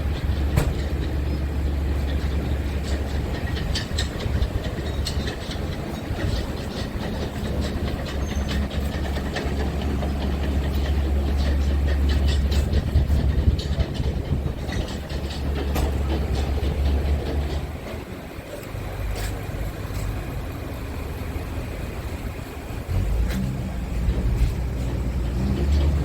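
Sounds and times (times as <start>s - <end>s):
diesel truck engine droning: 0.0s - 26.0s
light rattling and clicking: 0.1s - 20.1s.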